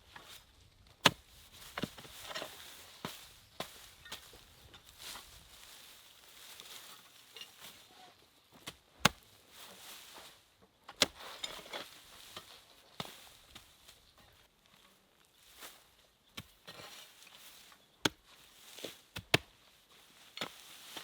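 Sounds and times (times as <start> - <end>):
light rustle: 0.0 - 8.7.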